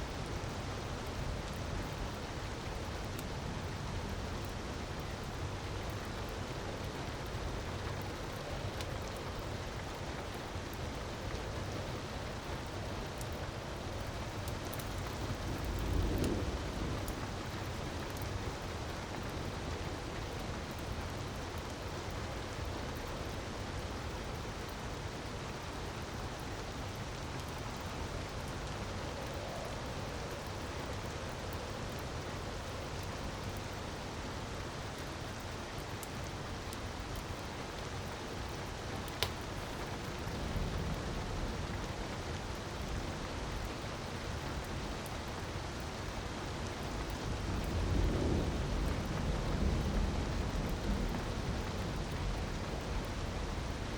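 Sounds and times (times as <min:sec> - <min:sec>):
wood fire crackling: 0:00.1 - 0:37.4, 0:38.0 - 0:43.2.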